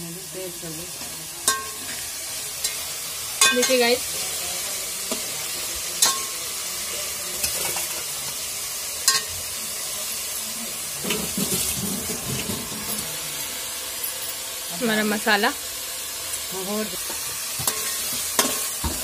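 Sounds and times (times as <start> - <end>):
food sizzling in hot oil: 0.0 - 19.0
metal spatula clinking on pot: 1.4 - 2.0, 3.4 - 3.9, 6.0 - 6.4, 9.0 - 9.4, 17.6 - 18.9.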